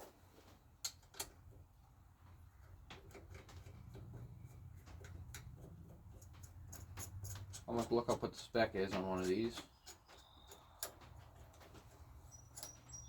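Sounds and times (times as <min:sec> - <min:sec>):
small tools clicking and clinking: 0:00.8 - 0:01.6, 0:02.6 - 0:13.0.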